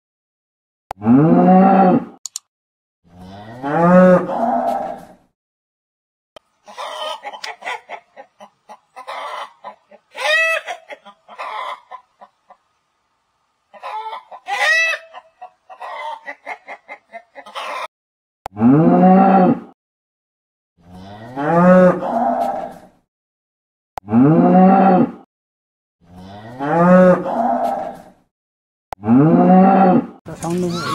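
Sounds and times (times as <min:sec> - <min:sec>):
hen clucking: 0:06.5 - 0:12.7, 0:13.7 - 0:17.9, 0:30.3 - 0:30.9
hen cackling: 0:06.6 - 0:12.7, 0:13.7 - 0:17.9, 0:30.3 - 0:30.9
calves mooing: 0:26.2 - 0:27.8.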